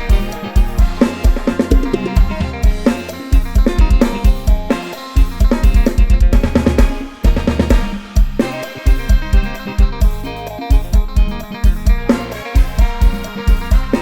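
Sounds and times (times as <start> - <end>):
bass and melody line: 0.0 - 14.0
drum kit fast beat: 0.0 - 14.0.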